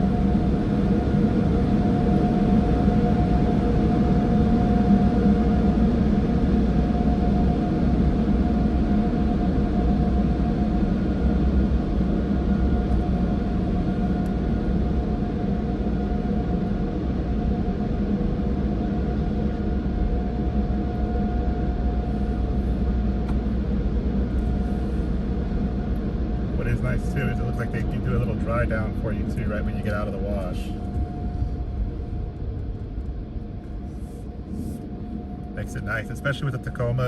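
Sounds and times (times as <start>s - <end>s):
constant whine: 0.0s - 37.0s
car wash machinery roaring: 21.6s - 37.0s.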